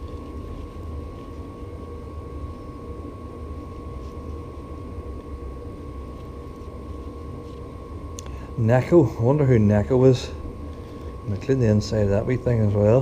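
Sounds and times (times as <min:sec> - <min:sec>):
machine hum with low rumble: 0:00.0 - 0:13.0
thin whine: 0:00.0 - 0:13.0.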